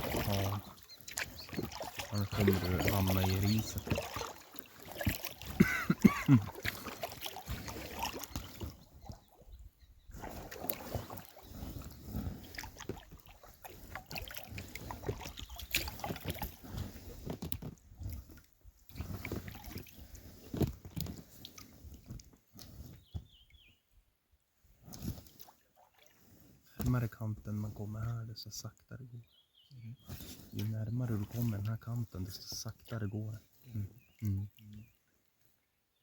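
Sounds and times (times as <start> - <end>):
water sloshing: 0.0 - 9.5, 10.1 - 22.3
paddles splashing: 0.0 - 22.8, 24.9 - 27.0, 30.1 - 34.9.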